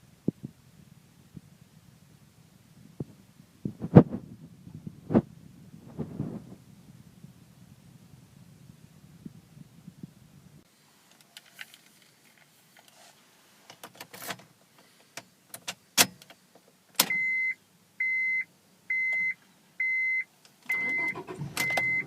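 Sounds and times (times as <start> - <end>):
car warning beeper: 17.1 - 22.0.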